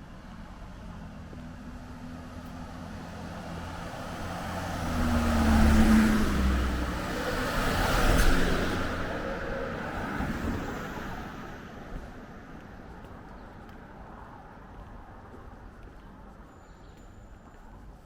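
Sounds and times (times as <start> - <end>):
low street background: 0.0 - 18.0
vehicle passing close by: 3.2 - 11.5.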